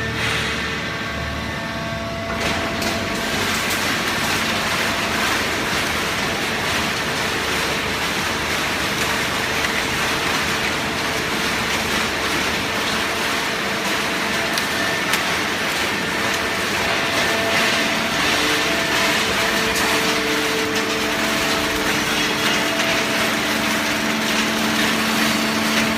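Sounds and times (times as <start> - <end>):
hydraulic baler running: 0.0 - 25.9.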